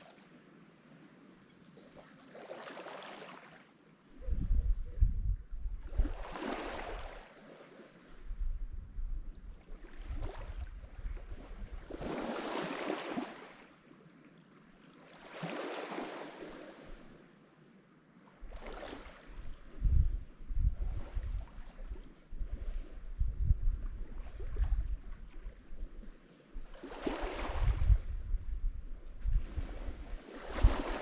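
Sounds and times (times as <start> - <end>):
waves breaking on shore: 0.0 - 0.4, 1.7 - 3.8, 5.9 - 8.2, 11.3 - 17.1, 18.4 - 19.8, 26.6 - 28.1, 29.2 - 31.0
wind rumble on microphone: 4.1 - 7.2, 8.1 - 12.3, 18.4 - 31.0.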